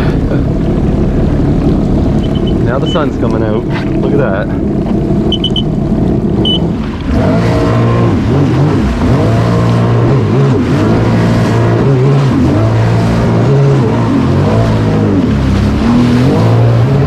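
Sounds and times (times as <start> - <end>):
watercraft engine revving: 0.0 - 17.0
short high beeps: 2.2 - 2.6, 5.3 - 5.7, 6.4 - 6.6.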